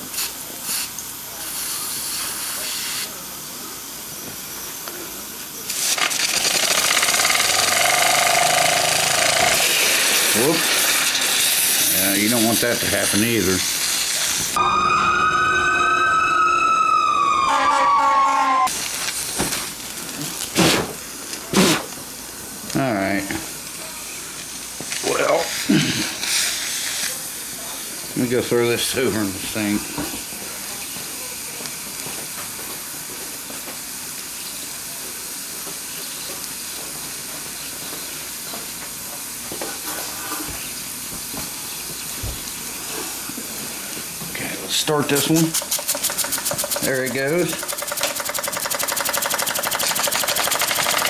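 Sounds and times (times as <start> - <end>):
steam hissing: 0.0 - 14.7, 17.5 - 51.0
steam whistle blowing: 14.6 - 18.8.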